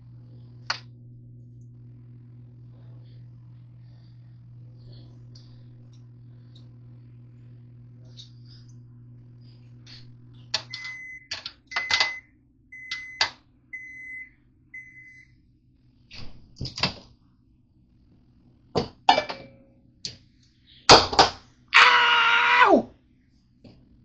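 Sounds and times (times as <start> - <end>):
microwave oven humming: 0.0 - 24.0
microwave beeps: 10.6 - 15.4.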